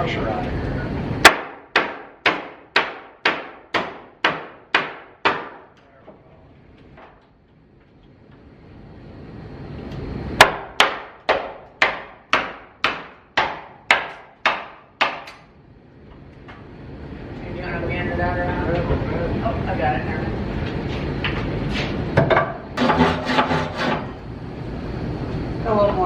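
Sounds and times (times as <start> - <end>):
hammer blows: 22.8 - 24.2.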